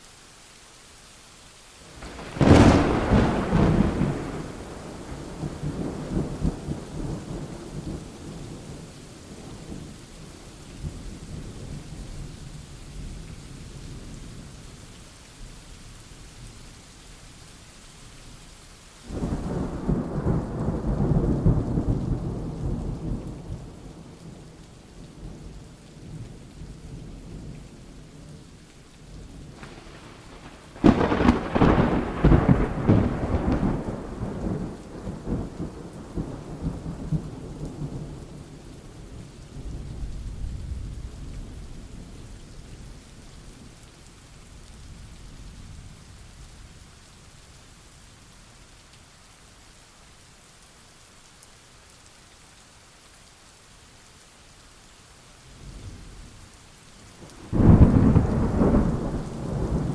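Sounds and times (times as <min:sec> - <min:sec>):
steady rain: 0:00.0 - 0:59.9
sharp thunderclap: 0:02.0 - 0:07.5, 0:29.5 - 0:37.3, 0:57.4 - 0:59.9
rolling thunder: 0:02.0 - 0:09.9, 0:29.4 - 0:38.6, 0:57.2 - 0:59.9.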